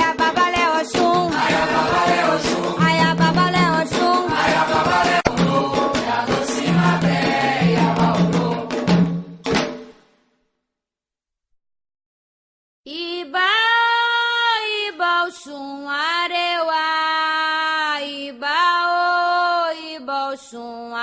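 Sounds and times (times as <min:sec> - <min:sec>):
woman singing unaccompanied chant: 0:00.0 - 0:05.8, 0:12.9 - 0:21.0.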